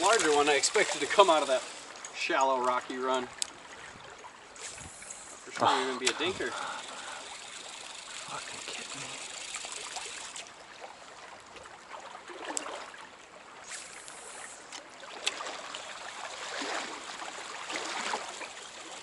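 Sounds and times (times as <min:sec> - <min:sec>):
sharp ticks: 0:00.0 - 0:02.5, 0:04.6 - 0:10.5
stream water running: 0:00.0 - 0:19.0
water splashing: 0:00.0 - 0:19.0.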